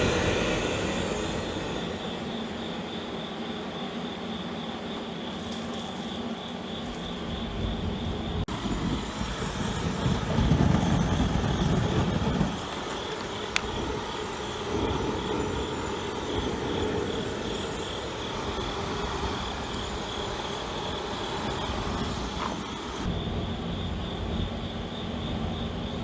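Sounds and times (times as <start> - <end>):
gas flare burner rumble: 0.0 - 3.0, 8.4 - 23.1
constant high whine: 0.0 - 25.9.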